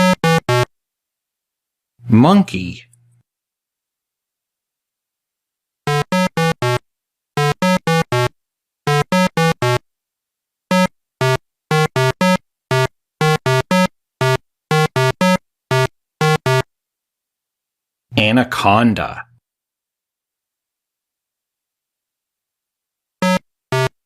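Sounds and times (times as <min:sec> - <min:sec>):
staccato synthesizer notes: 0:00.0 - 0:00.7, 0:05.9 - 0:06.8, 0:07.4 - 0:08.3, 0:08.9 - 0:09.8, 0:10.7 - 0:16.7, 0:23.2 - 0:24.0.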